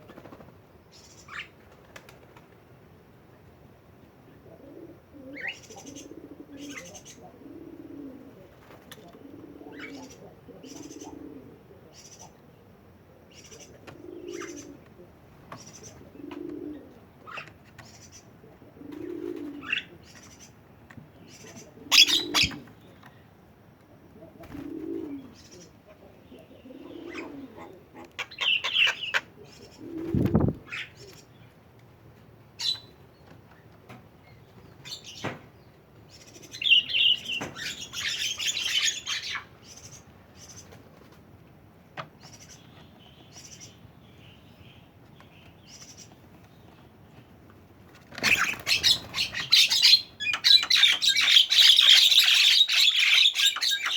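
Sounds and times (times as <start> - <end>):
bird cooing: 4.3 - 20.5, 21.3 - 23.2, 23.9 - 31.3
bird chirps and squawks: 21.4 - 22.7, 48.2 - 53.9.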